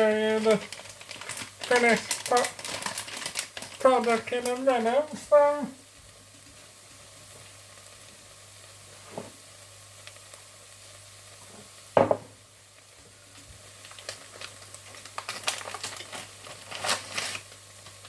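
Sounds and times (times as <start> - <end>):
chicken sizzling as it fries: 0.0 - 18.0
sharp knock on pan: 12.0 - 12.4.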